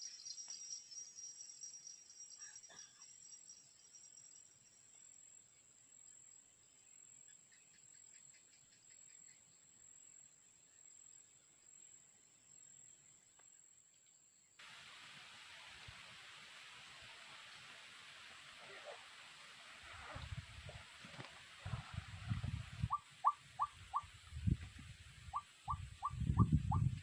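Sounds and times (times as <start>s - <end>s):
insect drone: 0.0s - 7.4s, 14.2s - 26.5s
rapid insect chirps: 0.0s - 27.0s
loud steady hiss: 14.6s - 26.1s.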